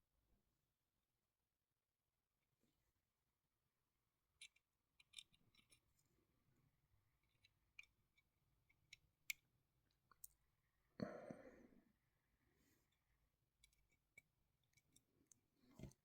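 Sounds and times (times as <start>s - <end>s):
plastic parts clicking and tapping: 4.4s - 5.9s, 13.6s - 16.0s.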